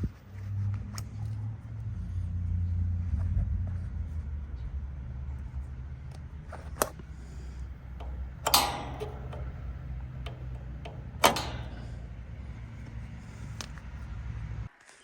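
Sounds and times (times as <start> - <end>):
steady low hum: 6.3 - 14.7
sharp knocks: 8.0 - 12.4.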